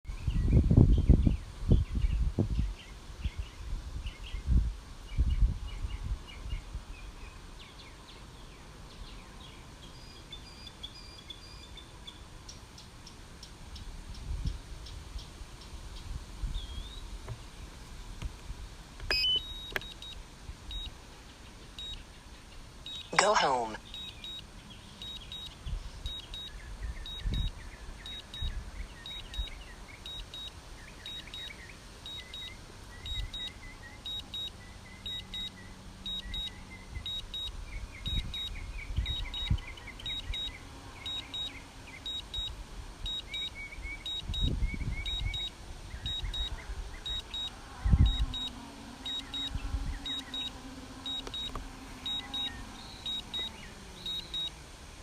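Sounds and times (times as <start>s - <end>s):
high double beep: 19.1s - 20.9s, 22.9s - 24.4s, 25.0s - 25.5s, 26.1s - 26.5s, 27.1s - 27.5s, 28.1s - 28.5s, 29.1s - 29.5s, 30.1s - 30.5s, 31.1s - 31.5s, 32.1s - 33.5s, 34.1s - 34.5s, 35.1s - 35.5s, 36.1s - 36.5s, 37.1s - 37.5s, 38.1s - 40.5s, 41.1s - 41.5s, 42.1s - 42.5s, 43.1s - 43.5s, 44.1s - 45.5s, 46.1s - 46.5s, 47.1s - 47.5s, 48.1s - 48.5s, 49.1s - 50.5s, 51.1s - 51.5s, 52.1s - 53.5s, 54.1s - 54.5s.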